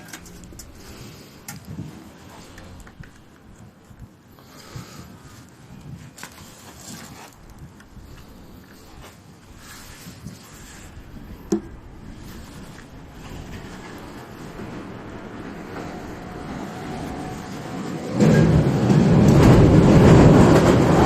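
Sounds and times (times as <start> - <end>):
light scrapes of handling: 4.6 - 14.6.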